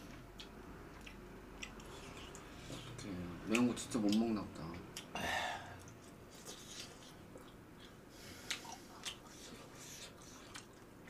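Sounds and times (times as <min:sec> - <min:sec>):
wet chewing: 0:00.0 - 0:05.1, 0:05.8 - 0:11.0.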